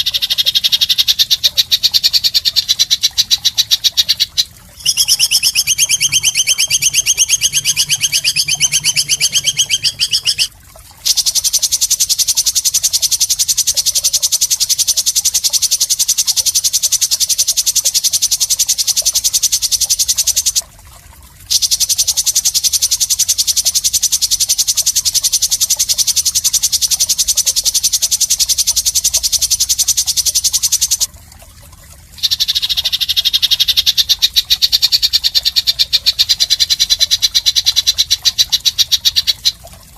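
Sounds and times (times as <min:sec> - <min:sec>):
high-pitched pulsing trill: 0:04.8 - 0:10.5.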